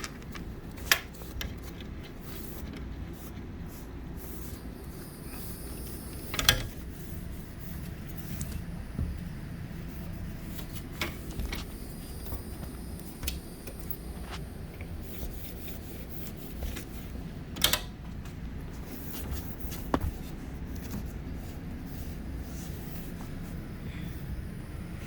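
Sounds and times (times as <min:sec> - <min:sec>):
objects being handled: 0:00.0 - 0:03.6
steady low hum: 0:00.0 - 0:25.0.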